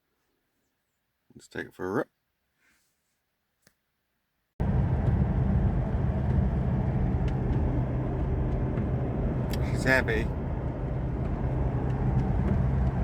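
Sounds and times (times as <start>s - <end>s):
diesel engine driving: 4.6s - 13.0s
road noise: 4.6s - 13.0s.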